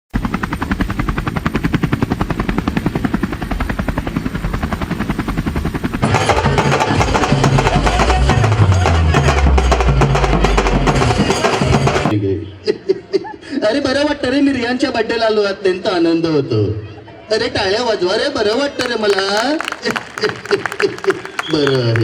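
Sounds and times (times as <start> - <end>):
helicopter rotor chopping: 0.2 - 12.1.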